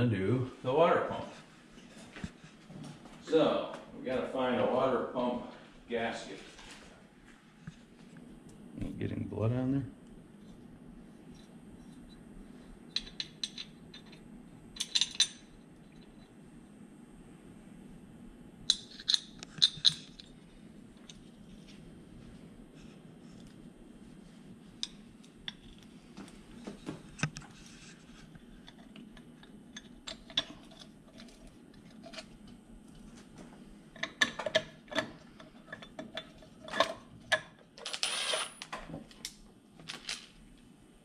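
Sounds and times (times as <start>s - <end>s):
metal bolts clicking and clinking: 12.9s - 14.2s, 14.8s - 15.4s, 18.7s - 20.3s, 34.0s - 38.8s.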